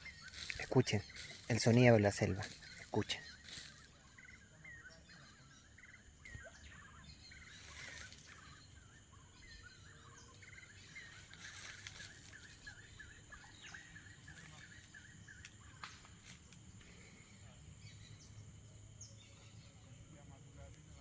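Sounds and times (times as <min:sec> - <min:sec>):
chirping animal calls: 0:00.0 - 0:16.2.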